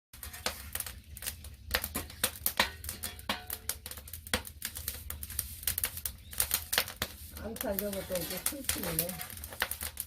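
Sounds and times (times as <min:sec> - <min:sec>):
firewood crackling and popping: 0:00.1 - 0:10.0.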